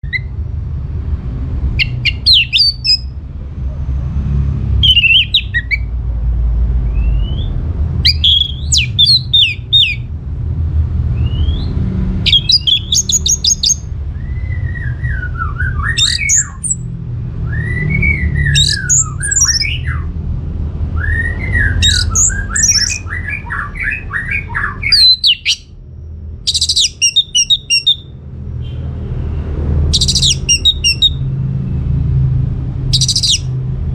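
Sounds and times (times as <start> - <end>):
thrush singing: 1.7 - 3.1, 4.8 - 5.9, 11.3 - 16.9, 17.6 - 20.0, 29.9 - 31.2, 32.9 - 33.6.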